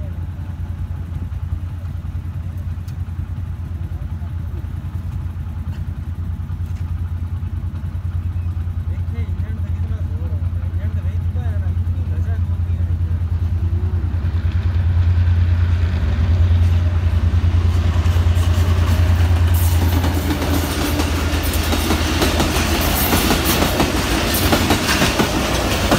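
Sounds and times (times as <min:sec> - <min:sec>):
diesel locomotive engine drone: 0:00.0 - 0:25.9
train wheels clattering over rail joints: 0:04.4 - 0:14.8, 0:15.8 - 0:25.9.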